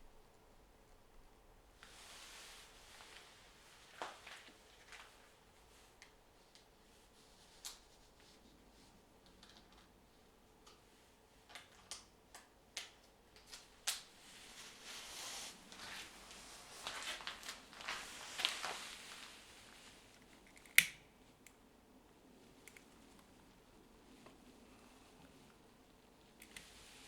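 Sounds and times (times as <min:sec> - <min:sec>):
fire crackling in fireplace: 0:11.5 - 0:27.0.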